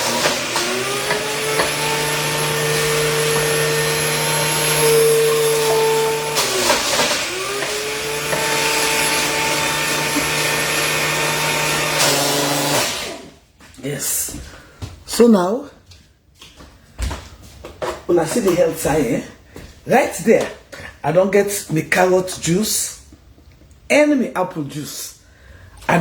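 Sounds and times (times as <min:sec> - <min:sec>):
electric juicer motor running: 0:00.0 - 0:13.4.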